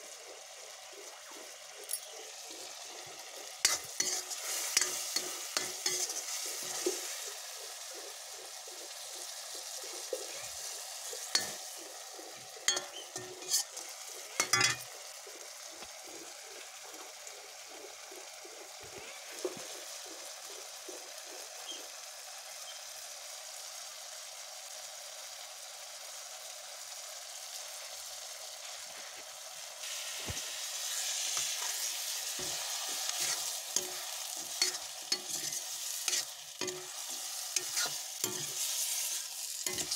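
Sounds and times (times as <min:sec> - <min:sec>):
vegetables sizzling in a pan: 0:00.0 - 0:39.9
spatula scraping a pan: 0:02.6 - 0:07.6, 0:09.9 - 0:14.9, 0:29.8 - 0:39.9.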